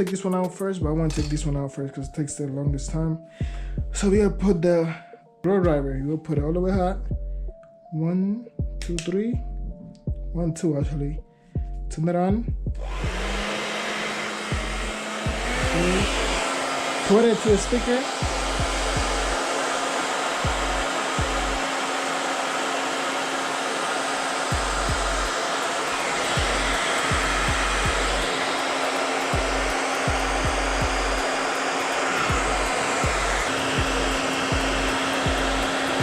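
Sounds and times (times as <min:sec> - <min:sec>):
blow dryer running: 0:12.7 - 0:36.0.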